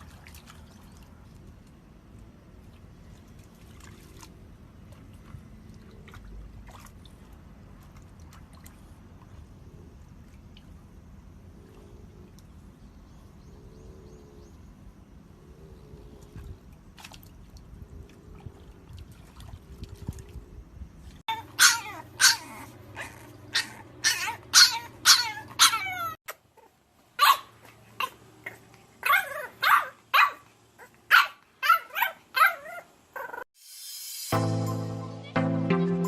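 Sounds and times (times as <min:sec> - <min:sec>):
puppies barking and yipping: 0:21.3 - 0:33.4.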